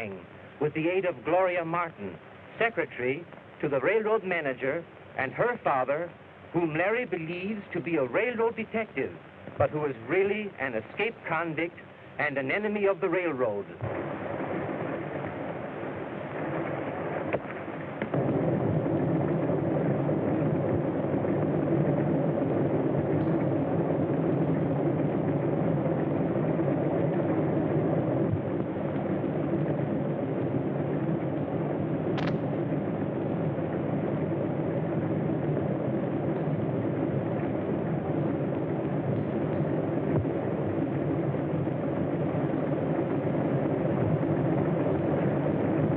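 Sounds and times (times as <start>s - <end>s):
sharp click: 32.2s - 32.4s.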